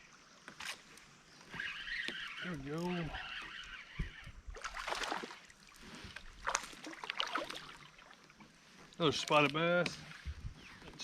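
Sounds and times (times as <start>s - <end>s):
water splashing against kayak: 3.2s - 11.0s.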